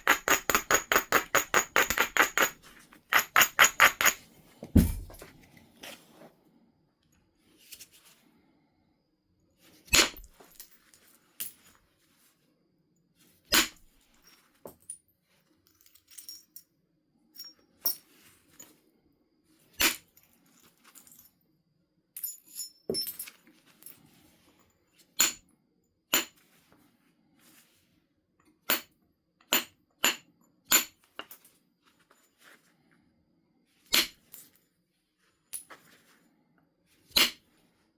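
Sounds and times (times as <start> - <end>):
stone striking flint: 0.0 - 5.3.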